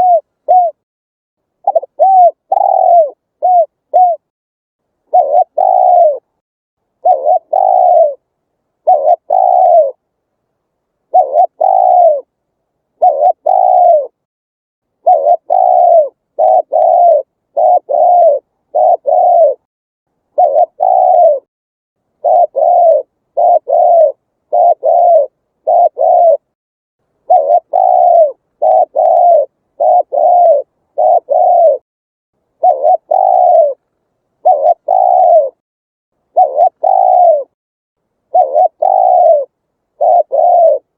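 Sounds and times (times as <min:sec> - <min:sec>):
dove cooing: 0:00.0 - 0:00.8, 0:01.6 - 0:04.3, 0:05.1 - 0:06.3, 0:07.0 - 0:08.2, 0:08.8 - 0:10.0, 0:11.1 - 0:12.3, 0:13.0 - 0:14.2, 0:15.0 - 0:19.7, 0:20.3 - 0:21.5, 0:22.2 - 0:26.6, 0:27.2 - 0:31.8, 0:32.6 - 0:33.8, 0:34.4 - 0:35.6, 0:36.3 - 0:37.6, 0:38.3 - 0:40.9.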